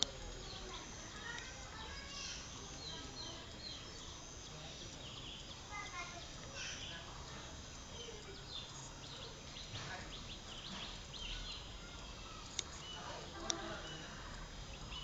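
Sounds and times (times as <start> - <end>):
sharp clicks: 0.0 - 1.6, 12.0 - 12.8
birds chirping: 0.0 - 15.0.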